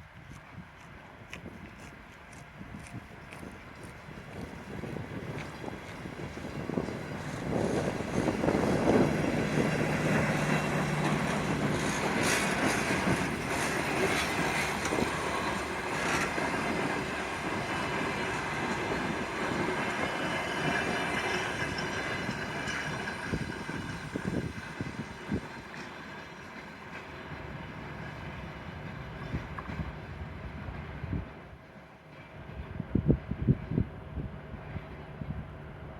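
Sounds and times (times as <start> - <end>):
wheels clicking over rail joints: 3.4 - 29.9.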